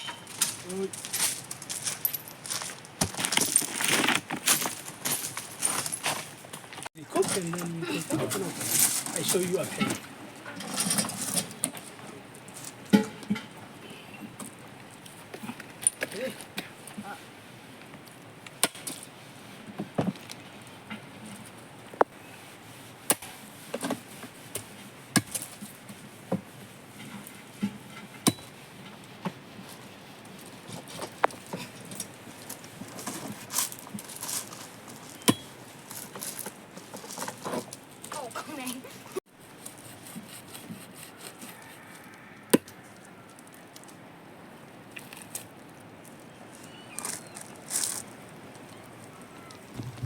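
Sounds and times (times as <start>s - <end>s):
sharp knocks on wood: 49.8s - 50.0s.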